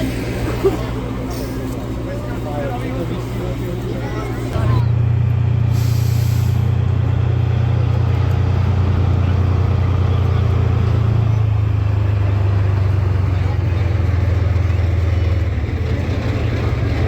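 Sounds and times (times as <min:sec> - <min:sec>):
truck engine at high revs: 0:00.0 - 0:17.0.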